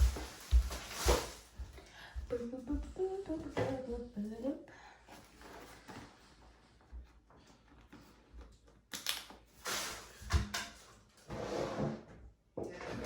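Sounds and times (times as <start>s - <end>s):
rustling: 0.0s - 1.7s.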